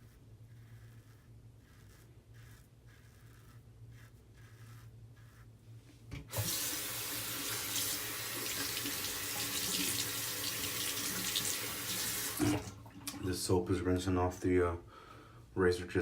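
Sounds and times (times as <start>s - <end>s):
razor scraping strokes: 0.0s - 8.6s
tap water running into sink: 6.3s - 13.2s.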